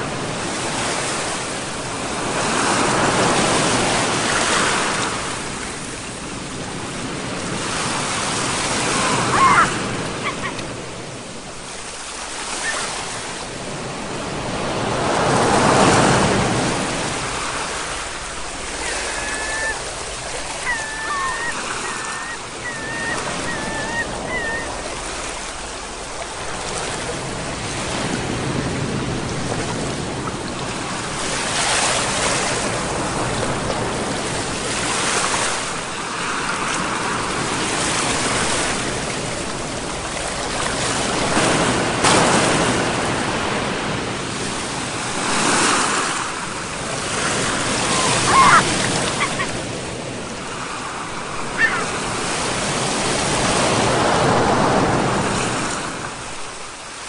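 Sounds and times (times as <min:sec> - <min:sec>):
sea waves breaking: 0:00.0 - 0:57.0
wavering high chirps: 0:18.8 - 0:25.0.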